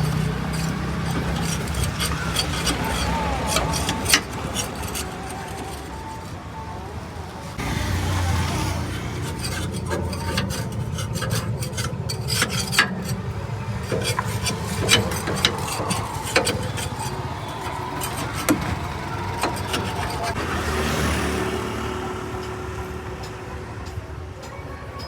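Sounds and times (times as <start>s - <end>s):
low engine hum: 0.0s - 12.3s.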